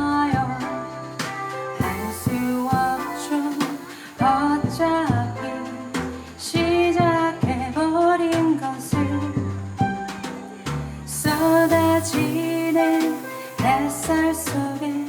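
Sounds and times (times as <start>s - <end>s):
jazz trio playing: 0.0s - 15.0s
cymbal and drum strikes: 1.2s - 4.8s, 11.2s - 15.0s.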